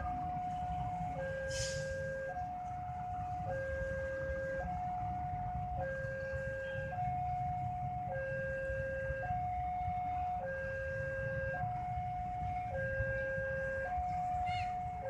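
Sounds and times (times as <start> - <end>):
low traffic rumble: 0.0 - 15.0.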